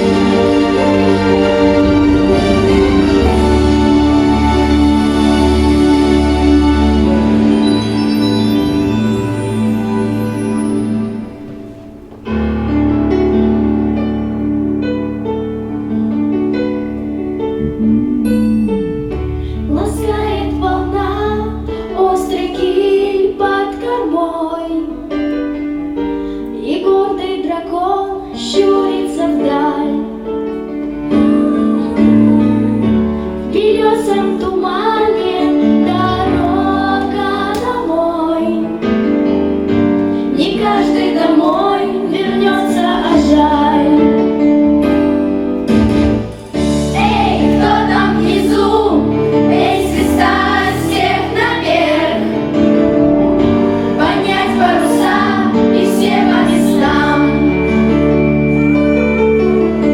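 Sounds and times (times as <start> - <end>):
instrumental backing with bass line: 0.0 - 23.0, 38.8 - 59.9
woman singing: 19.7 - 25.1, 26.6 - 30.2, 31.1 - 38.8, 40.3 - 44.4.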